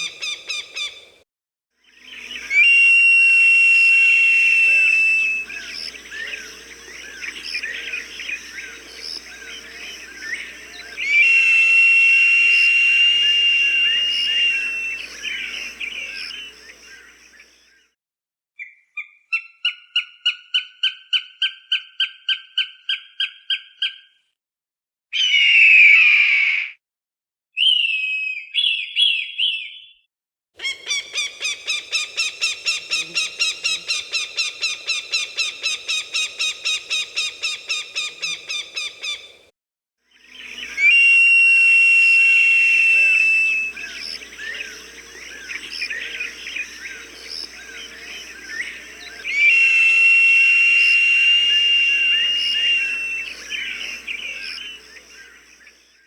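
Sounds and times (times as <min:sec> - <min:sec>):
recorded falcon calls: 0:00.0 - 0:01.1, 0:02.1 - 0:17.2, 0:30.6 - 0:39.4, 0:40.3 - 0:55.4
falcon screech: 0:11.0 - 0:15.1, 0:49.3 - 0:53.4.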